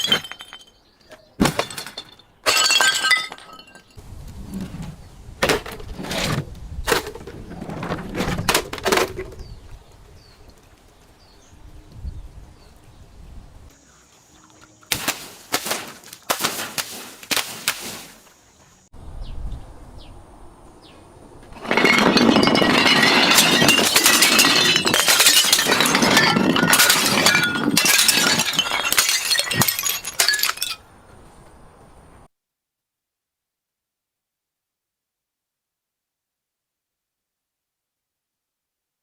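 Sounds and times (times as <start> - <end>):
glass crackling and shattering: 0.0 - 0.8, 1.4 - 4.0, 21.6 - 30.8
glass smashing and crunching: 0.0 - 0.8, 1.4 - 4.0, 21.6 - 30.8.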